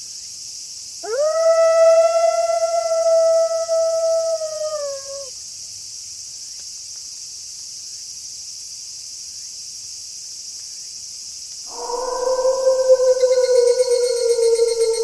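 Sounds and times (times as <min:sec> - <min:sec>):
night insects chorus: 0:00.0 - 0:15.0
wolf howling: 0:01.0 - 0:05.3, 0:11.7 - 0:15.0.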